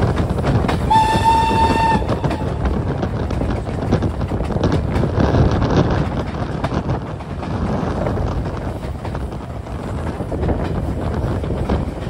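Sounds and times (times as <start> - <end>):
train wheels clattering on rails: 0.0 - 12.0
wind buffeting microphone: 0.0 - 12.0
locomotive whistle: 0.9 - 2.6.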